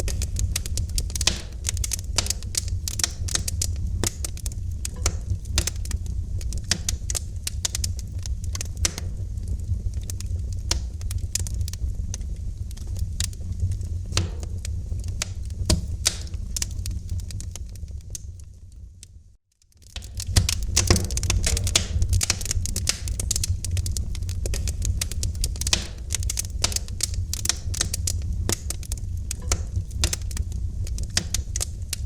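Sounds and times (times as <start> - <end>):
low rumble of flames: 0.0 - 32.0
wood fire crackling: 0.0 - 32.0.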